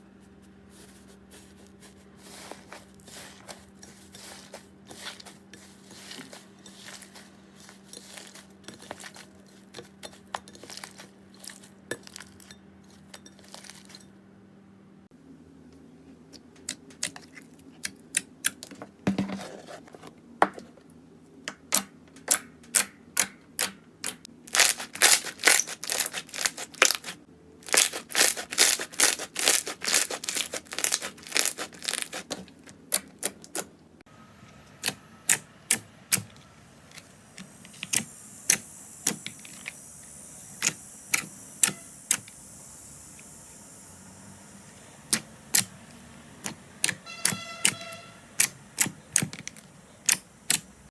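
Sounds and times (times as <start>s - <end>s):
steady hiss: 37.1s - 45.5s.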